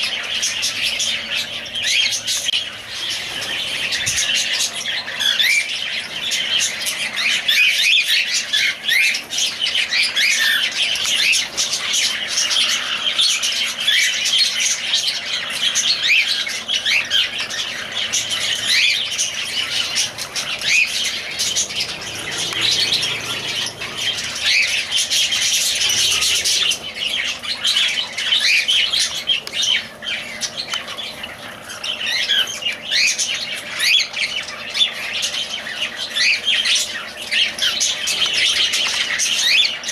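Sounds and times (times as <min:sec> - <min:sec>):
parrots chirping and squawking: 0:00.0 - 0:39.9.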